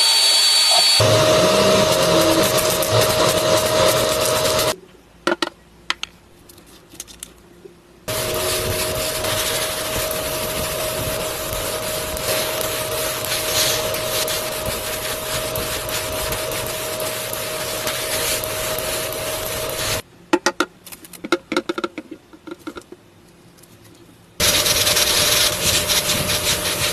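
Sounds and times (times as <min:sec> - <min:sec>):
small electric motor whirring: 0:00.0 - 0:04.8, 0:08.1 - 0:20.0, 0:24.4 - 0:26.9.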